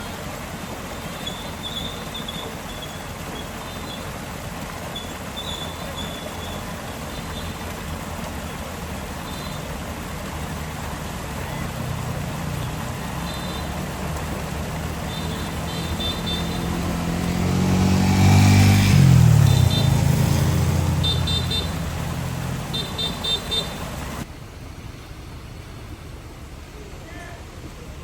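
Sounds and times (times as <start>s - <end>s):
vehicle engine passing: 0.0s - 28.0s
rapid high-pitched toots: 14.8s - 17.3s.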